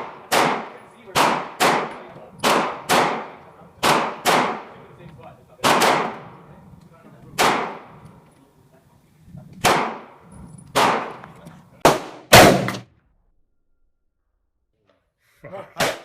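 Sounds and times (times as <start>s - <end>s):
gunshots echoing: 0.0s - 4.8s, 5.6s - 6.4s, 7.4s - 8.0s, 9.6s - 11.2s, 11.8s - 12.9s.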